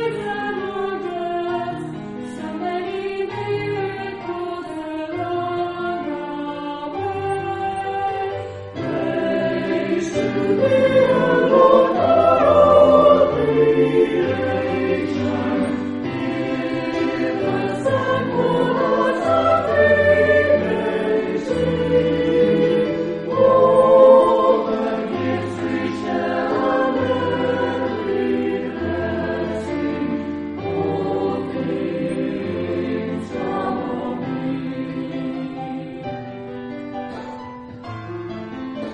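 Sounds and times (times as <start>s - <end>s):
choir singing: 0.0s - 36.8s.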